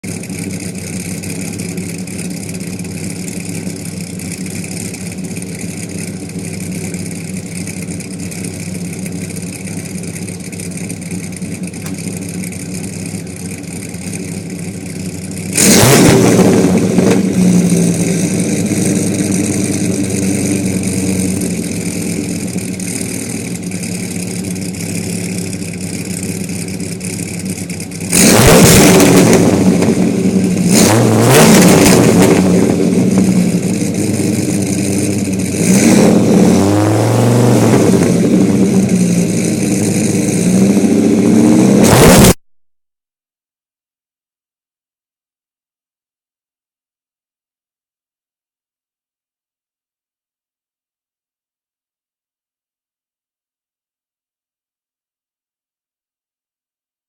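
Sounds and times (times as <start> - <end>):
engine idling and revving: 0.0 - 42.4.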